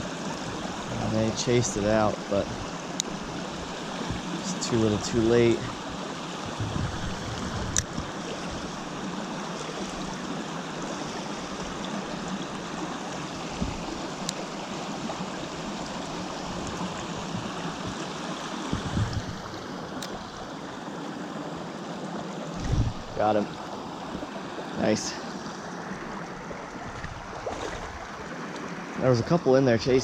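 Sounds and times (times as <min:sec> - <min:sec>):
stream running over rocks: 0:00.0 - 0:30.0
low thumps: 0:04.0 - 0:04.6, 0:06.4 - 0:08.1, 0:13.6 - 0:13.9, 0:18.7 - 0:19.4, 0:22.6 - 0:23.2.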